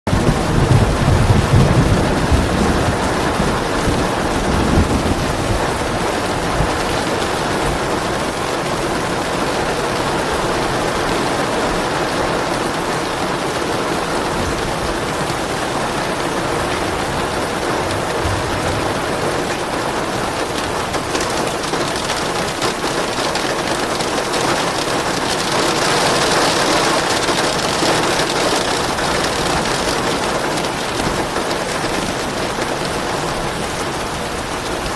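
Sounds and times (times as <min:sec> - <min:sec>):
low rumbles of thunder: 0:00.1 - 0:08.3, 0:14.3 - 0:22.6
steady rain falling: 0:00.1 - 0:34.9.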